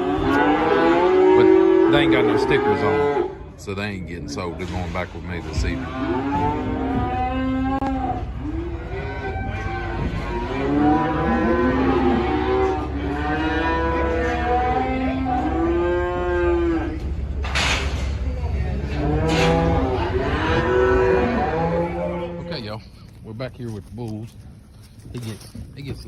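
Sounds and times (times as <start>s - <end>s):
cattle mooing and bawling: 0.0s - 3.5s, 5.4s - 17.2s, 18.8s - 22.6s
steady low rumble: 14.0s - 26.0s.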